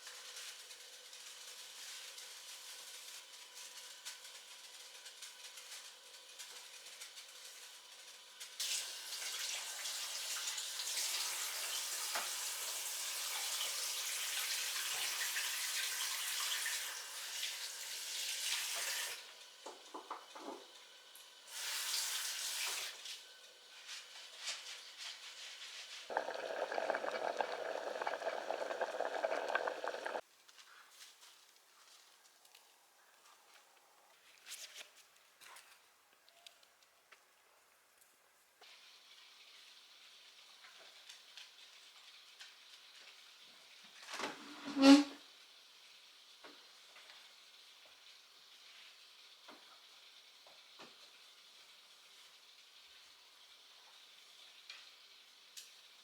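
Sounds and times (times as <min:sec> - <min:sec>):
water running: 0:25.3 - 0:30.2.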